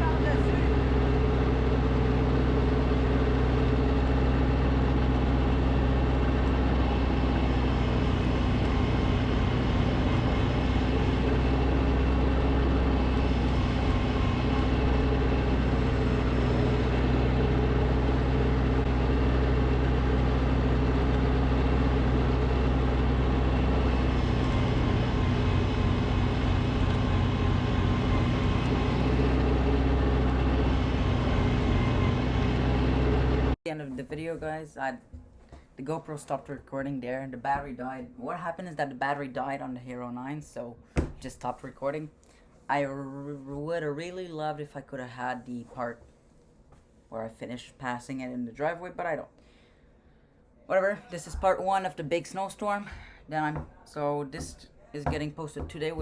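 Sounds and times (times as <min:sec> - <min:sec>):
snowblower engine running: 0:00.0 - 0:33.6.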